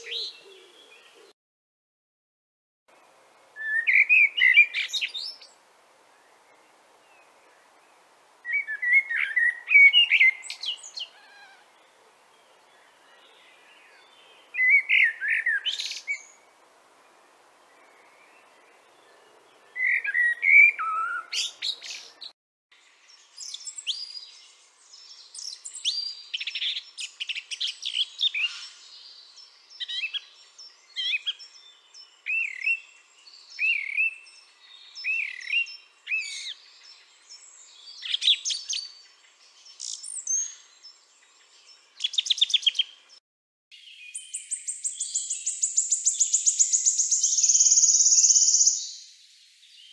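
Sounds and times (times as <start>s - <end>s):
songbird singing: 0.0s - 1.4s, 2.9s - 49.9s.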